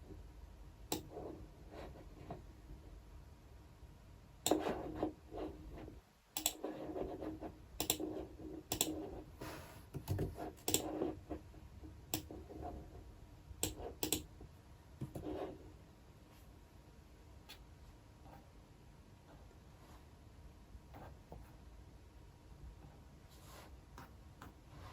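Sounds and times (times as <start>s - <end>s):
typing on computer keyboard: 13.6s - 14.3s.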